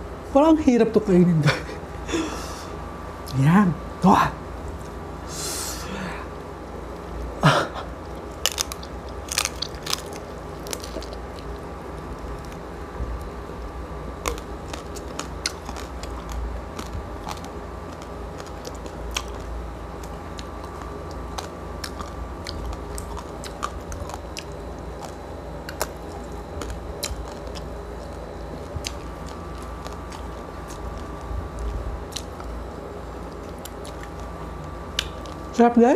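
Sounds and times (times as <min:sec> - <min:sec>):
crunching crispy pork skin: 0:06.9 - 0:35.6.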